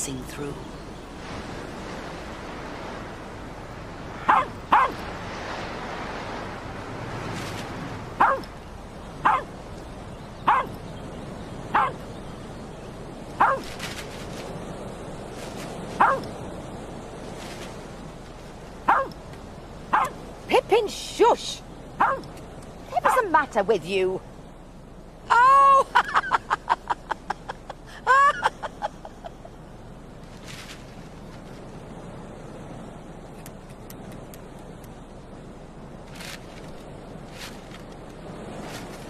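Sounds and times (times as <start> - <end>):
dog barking: 4.2 - 5.0, 8.2 - 8.5, 9.2 - 9.5, 10.5 - 10.8, 11.7 - 12.0, 13.4 - 13.7, 16.0 - 16.3, 18.9 - 19.2, 19.9 - 20.2, 22.0 - 22.3.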